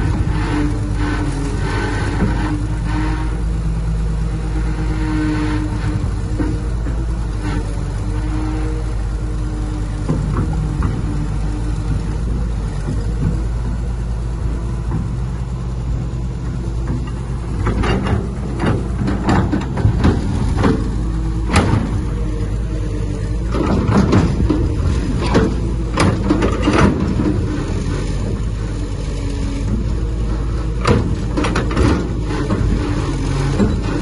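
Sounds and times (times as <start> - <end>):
diesel engine running: 0.0 - 34.0
metallic clanks and knocks: 10.0 - 11.5, 12.2 - 22.7, 23.4 - 28.5, 29.6 - 34.0.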